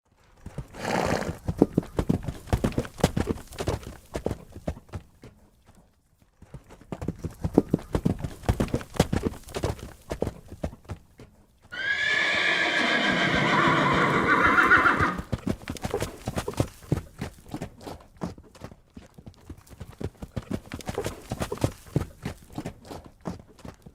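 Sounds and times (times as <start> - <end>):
horse hoofbeats galloping: 0.1 - 23.9
horse neighing loudly: 11.7 - 15.3.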